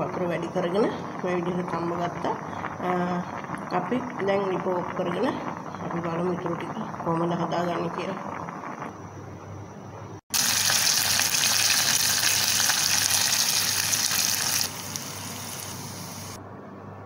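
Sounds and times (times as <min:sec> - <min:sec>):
vegetables sizzling in hot oil: 0:10.3 - 0:16.4.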